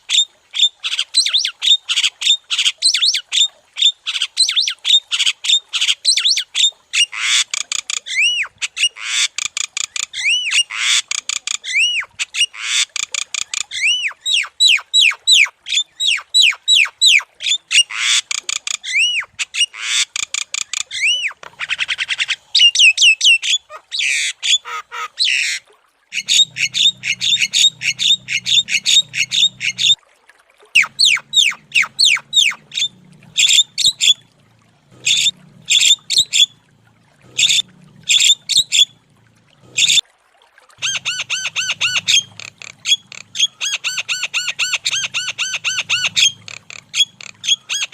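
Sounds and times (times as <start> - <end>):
myna bird singing: 26.2 - 30.0, 30.8 - 34.2, 34.9 - 36.6, 37.2 - 38.9, 40.8 - 47.9.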